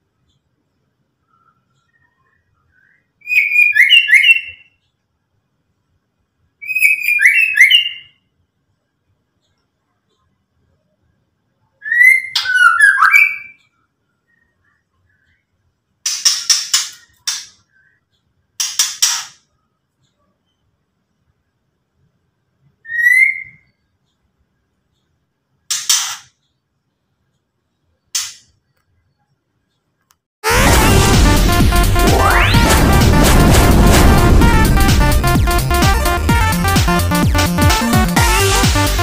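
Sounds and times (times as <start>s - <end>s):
bird whistled notes: 22.9s - 23.7s.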